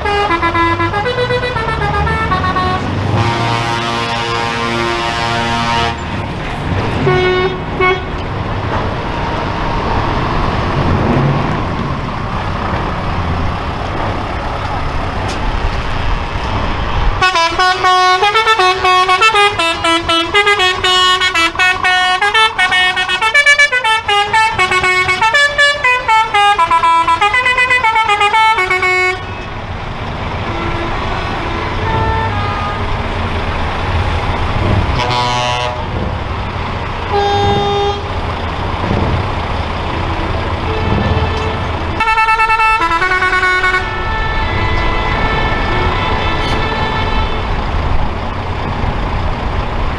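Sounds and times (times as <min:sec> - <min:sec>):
musical multi-tone horn: 0:00.0 - 0:08.2, 0:17.2 - 0:29.5, 0:30.5 - 0:36.0, 0:37.0 - 0:38.2, 0:39.8 - 0:47.7
truck horn toots and blast: 0:00.0 - 0:08.3, 0:17.2 - 0:29.6, 0:30.5 - 0:36.0, 0:36.9 - 0:38.2, 0:39.9 - 0:47.7
diesel engine rumble: 0:00.0 - 0:49.9.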